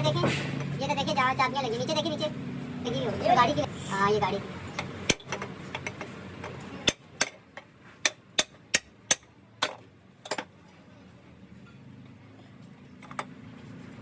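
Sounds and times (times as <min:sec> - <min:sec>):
sharp clicks of hard objects: 0:04.7 - 0:10.5.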